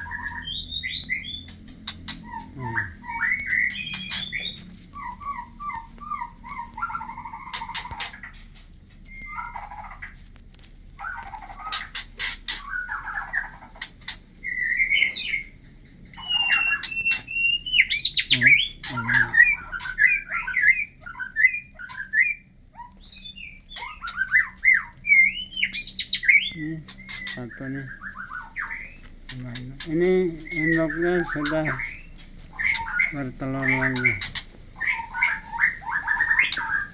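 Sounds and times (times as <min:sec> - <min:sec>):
bird chirps and whistles: 0:00.0 - 0:08.4, 0:14.4 - 0:15.5, 0:16.1 - 0:29.0, 0:29.8 - 0:36.9.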